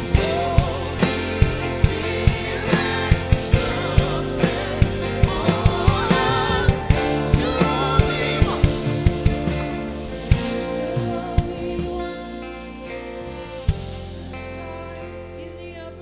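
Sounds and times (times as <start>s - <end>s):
drums keeping a steady beat: 0.0s - 12.2s
person singing: 0.0s - 16.0s
sustained chords: 0.0s - 16.0s.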